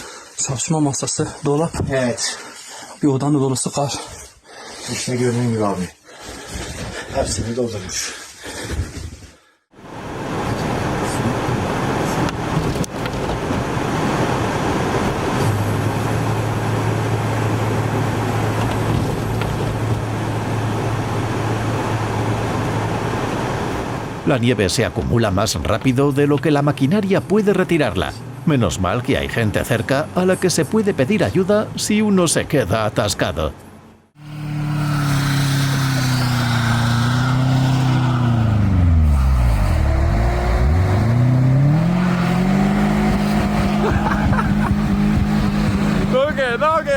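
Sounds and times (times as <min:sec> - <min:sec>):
vehicle engine humming: 0:09.8 - 0:24.3, 0:34.1 - 0:46.9
car engine revving: 0:34.2 - 0:46.9.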